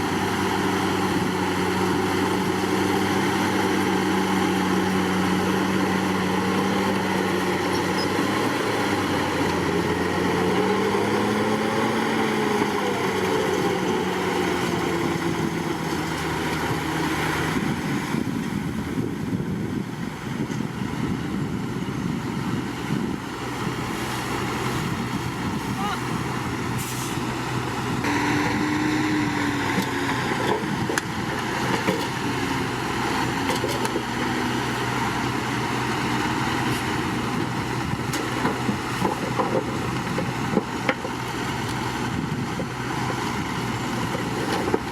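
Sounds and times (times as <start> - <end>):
bulldozer diesel engine running: 0.0 - 44.9
rough noisy churning: 22.5 - 44.9.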